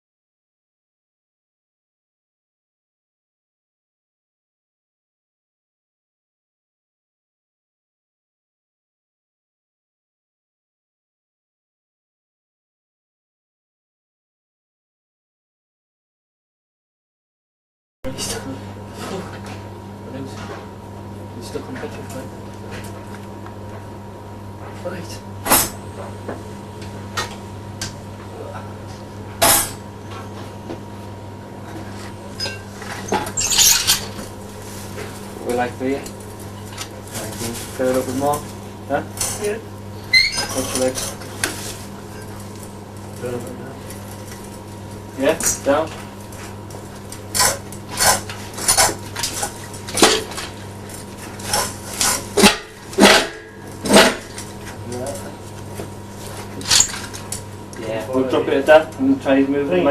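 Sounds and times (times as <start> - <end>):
steady electrical hum: 18.1 - 59.9
metal tools clanking: 32.4 - 34.2, 56.6 - 57.1
metallic clanks and clinks: 33.4 - 34.2.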